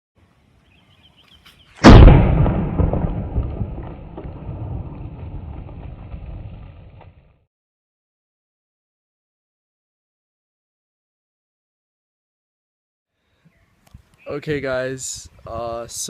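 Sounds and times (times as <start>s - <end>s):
bottle bomb bang: 1.8s - 6.9s
rumbling tail: 1.8s - 7.3s.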